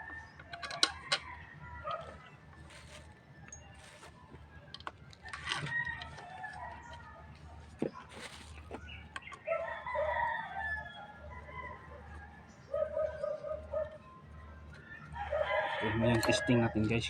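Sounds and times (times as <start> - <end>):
rooster crowing: 5.4 - 7.0, 9.4 - 13.8, 14.7 - 16.9.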